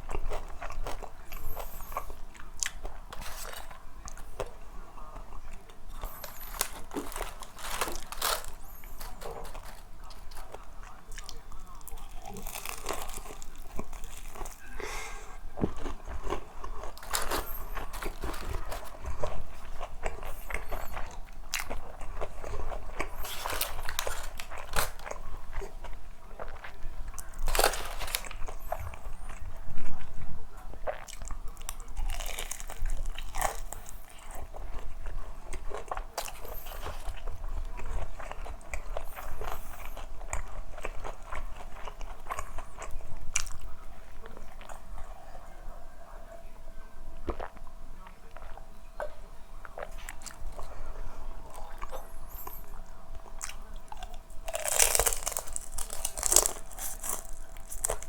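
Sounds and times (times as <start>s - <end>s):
wet chewing: 0.0s - 30.2s, 47.2s - 58.0s
crunching fried chicken: 0.0s - 44.8s, 49.7s - 58.0s.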